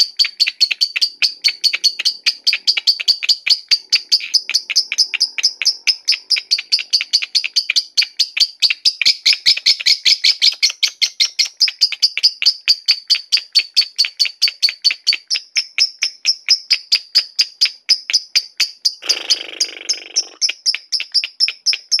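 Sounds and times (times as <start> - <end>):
lovebird chirping: 0.0 - 22.0.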